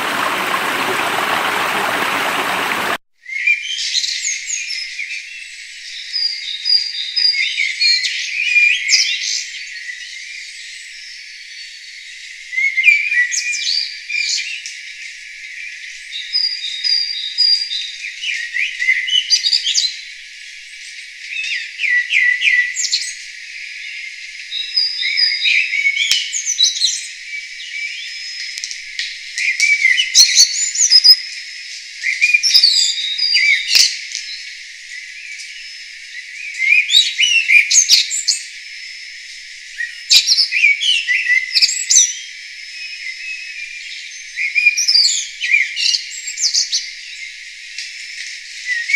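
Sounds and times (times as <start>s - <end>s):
songbirds singing: 0.0s - 5.1s, 21.2s - 48.9s.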